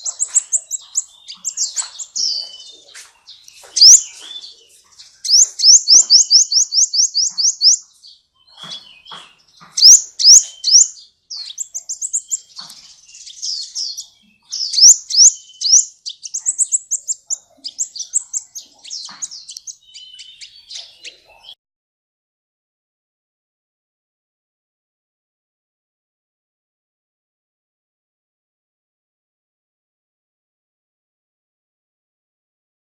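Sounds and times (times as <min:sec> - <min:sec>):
sunbird singing: 0:00.0 - 0:21.6.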